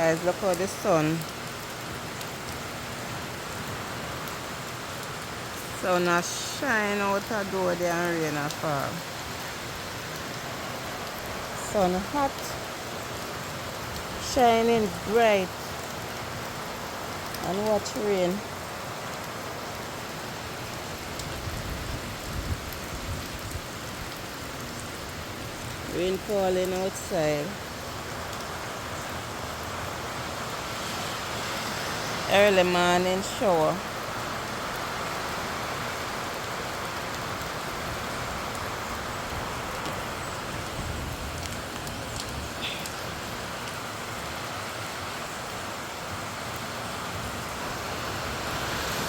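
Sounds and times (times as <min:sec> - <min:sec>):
rain falling: 0:00.0 - 0:49.0
faint drip ticks: 0:21.1 - 0:21.4, 0:38.4 - 0:43.8.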